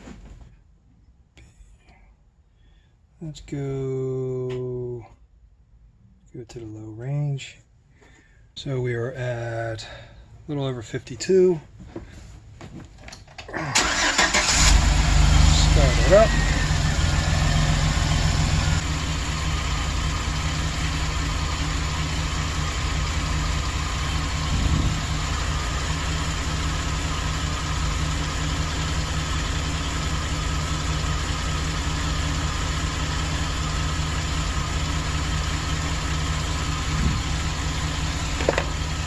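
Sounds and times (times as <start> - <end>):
van engine idling: 13.7 - 39.0.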